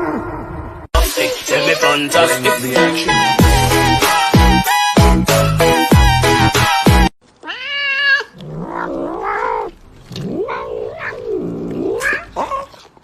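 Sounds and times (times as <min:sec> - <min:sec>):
music with heavy beat: 0:01.0 - 0:07.1
cat yowling: 0:07.4 - 0:09.7, 0:10.3 - 0:12.8.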